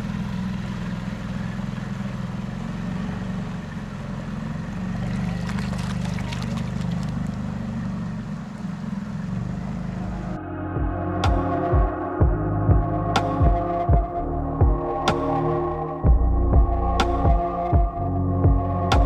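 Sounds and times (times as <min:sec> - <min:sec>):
outboard motor running: 0:00.1 - 0:10.0.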